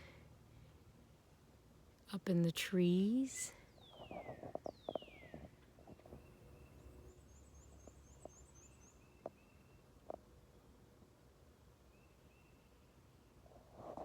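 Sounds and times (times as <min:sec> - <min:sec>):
faint birdsong: 0:03.0 - 0:10.7, 0:11.6 - 0:13.4.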